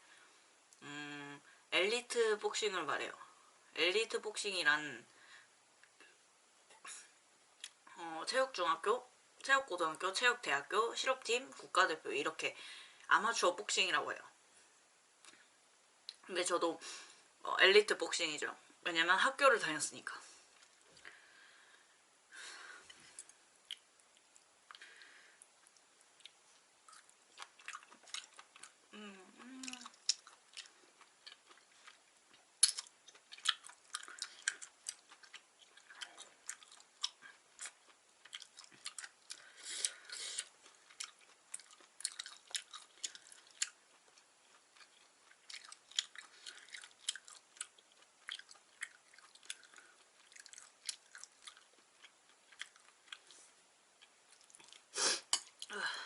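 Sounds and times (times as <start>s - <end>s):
wet chewing mouth clicks and smacks: 29.6s - 39.5s, 40.4s - 53.4s.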